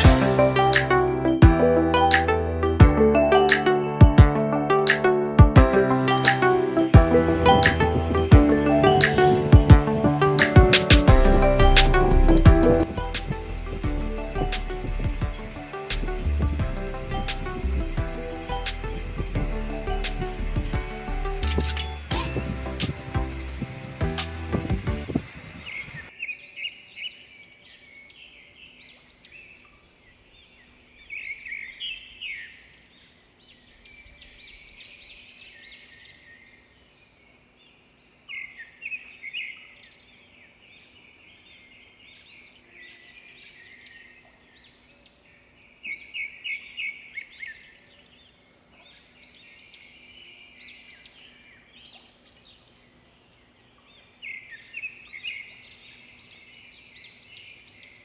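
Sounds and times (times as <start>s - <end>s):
bird rapid repeated notes: 0.0s - 25.1s
birds chirping: 0.0s - 58.0s.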